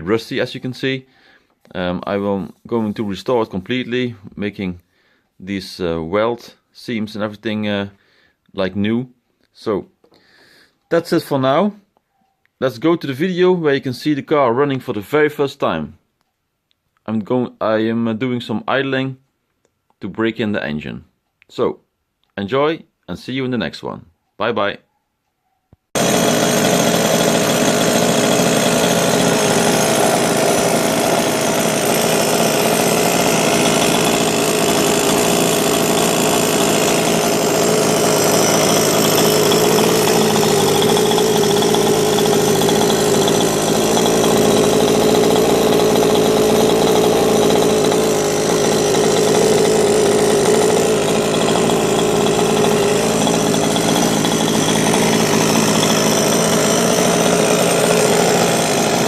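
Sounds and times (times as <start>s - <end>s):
two-stroke engine idling: 26.0s - 59.0s.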